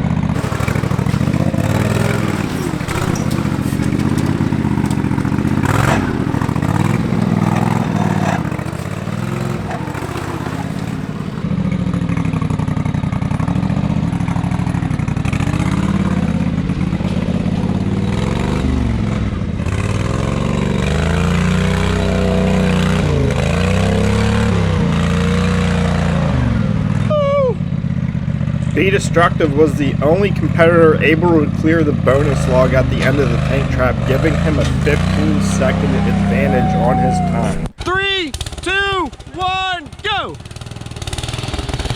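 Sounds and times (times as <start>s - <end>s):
lawn tractor engine revving: 0.3s - 11.5s, 28.8s - 37.7s.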